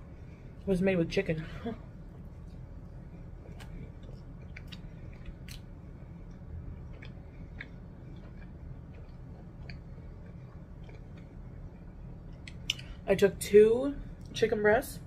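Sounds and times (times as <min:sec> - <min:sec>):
low steady hum: 0:00.0 - 0:15.0
person chewing with wet clicks: 0:02.1 - 0:13.0.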